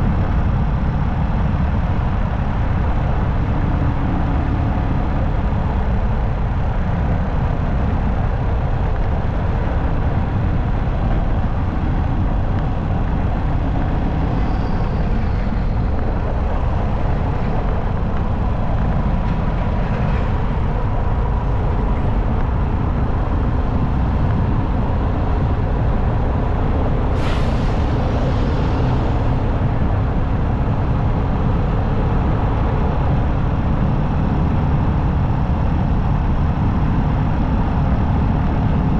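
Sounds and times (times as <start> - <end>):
wind noise: 0.0 - 38.9
sharp hiss: 27.2 - 28.9.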